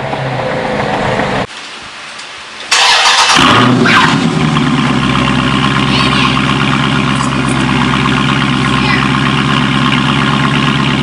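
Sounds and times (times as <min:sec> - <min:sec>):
car engine starting and idling: 0:02.6 - 0:11.0.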